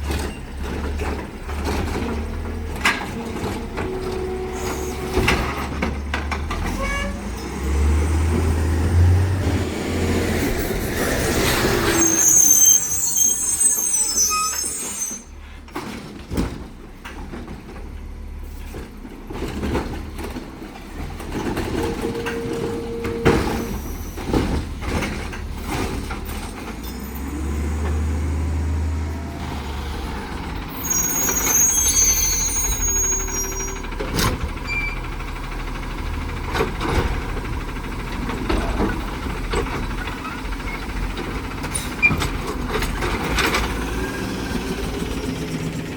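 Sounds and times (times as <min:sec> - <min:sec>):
diesel engine revving: 0:00.0 - 0:13.1, 0:18.2 - 0:45.9
air brake hisses: 0:04.5 - 0:05.1.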